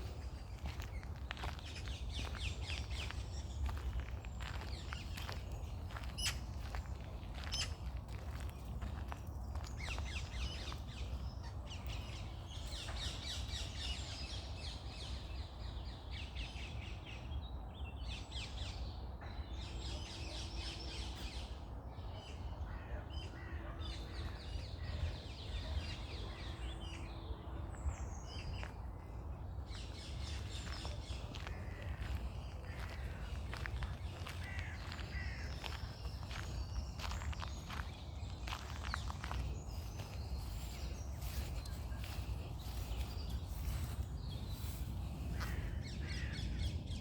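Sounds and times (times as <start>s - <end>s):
songbirds chirping and trilling: 0.0s - 47.0s.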